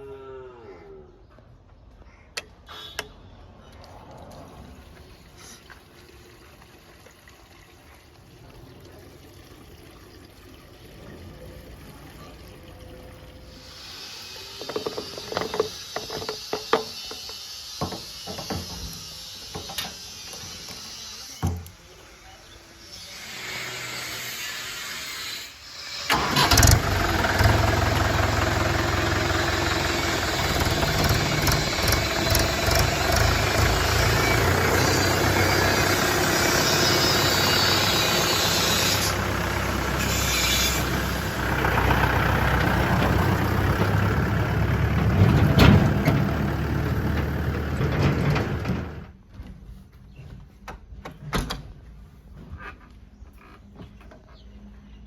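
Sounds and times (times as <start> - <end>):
heavy diesel engine running: 26.1 - 49.1.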